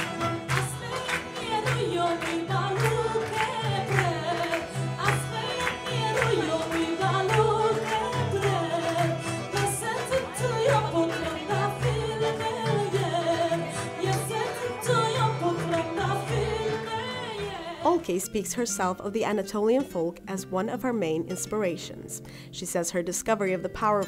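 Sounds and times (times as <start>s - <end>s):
percussive beat: 0.0s - 17.2s
woman singing: 0.0s - 24.0s.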